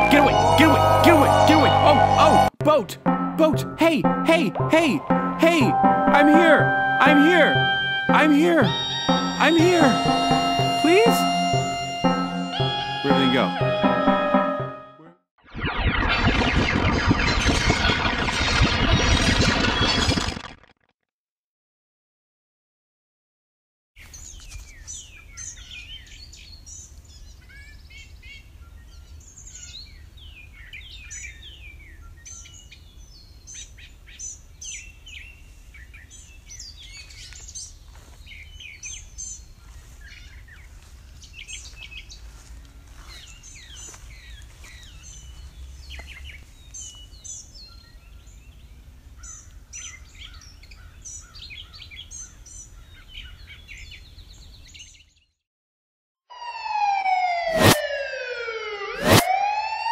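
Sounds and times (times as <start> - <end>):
birds chirping: 3.1 - 14.8, 24.1 - 55.2.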